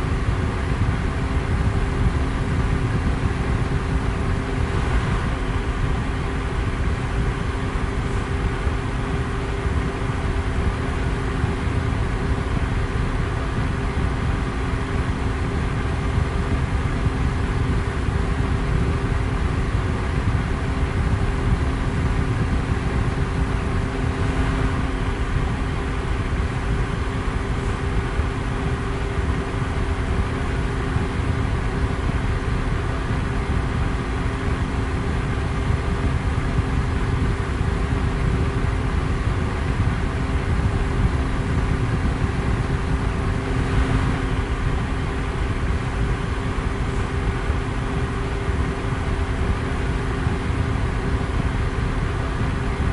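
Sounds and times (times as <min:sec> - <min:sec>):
electric fan air rush: 0:00.0 - 0:52.9
faint motor hum: 0:00.0 - 0:52.9.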